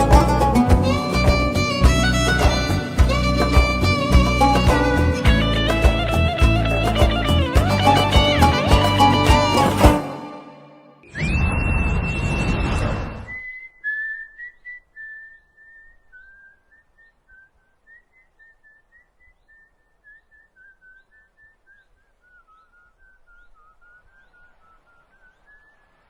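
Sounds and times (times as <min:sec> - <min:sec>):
high held whistle note: 0:00.0 - 0:14.5
faint whistled melody: 0:07.8 - 0:26.0.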